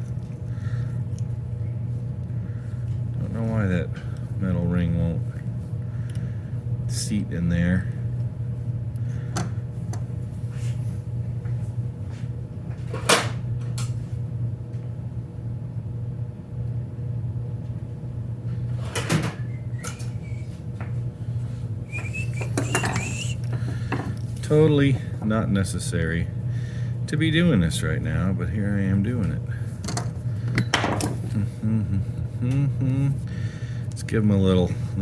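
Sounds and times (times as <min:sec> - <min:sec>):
steady low hum: 0:00.0 - 0:35.0
brief squeaks: 0:21.9 - 0:23.4.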